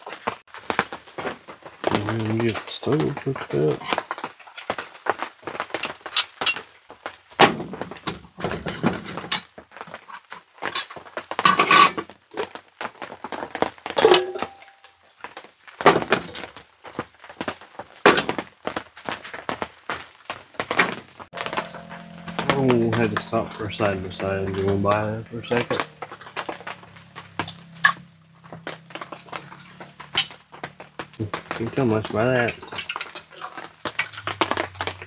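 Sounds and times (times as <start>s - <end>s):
camp stove gear clattering: 5.5s - 6.8s, 7.4s - 12.6s, 13.9s - 14.9s, 27.3s - 30.4s, 31.3s - 35.0s.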